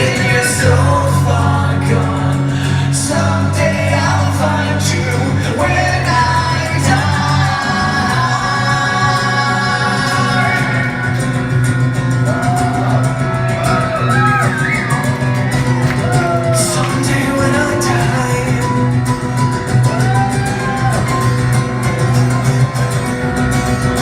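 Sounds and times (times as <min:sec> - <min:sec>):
person singing long notes: 0:00.0 - 0:11.6
acoustic guitar: 0:00.0 - 0:24.0.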